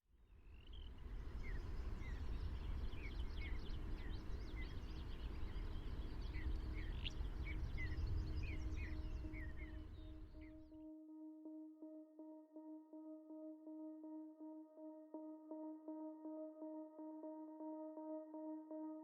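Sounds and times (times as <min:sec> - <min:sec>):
small birds chirping: 0:00.3 - 0:10.7
steady low rumble: 0:00.9 - 0:10.4.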